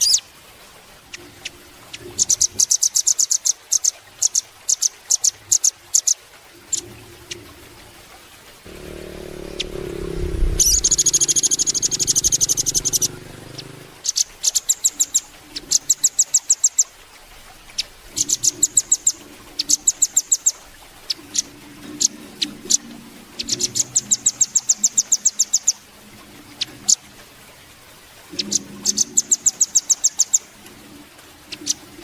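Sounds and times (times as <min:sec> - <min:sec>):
low rumble: 0:08.7 - 0:13.9
bird high trill: 0:10.4 - 0:13.1.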